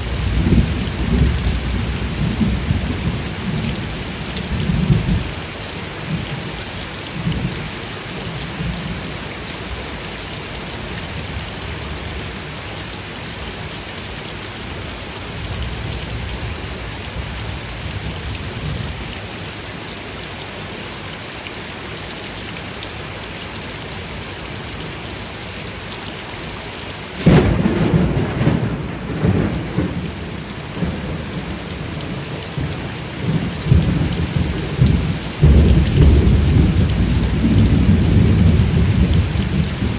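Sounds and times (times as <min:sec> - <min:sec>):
thunder rumbling: 0:00.0 - 0:05.3, 0:27.2 - 0:39.9
rain falling: 0:00.0 - 0:39.9
loud peal of thunder: 0:27.2 - 0:39.9.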